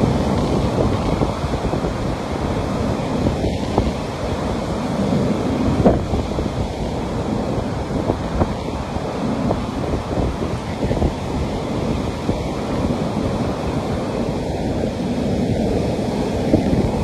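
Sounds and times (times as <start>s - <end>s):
waves washing onto beach: 0.0s - 17.0s
wind on microphone: 0.0s - 17.0s.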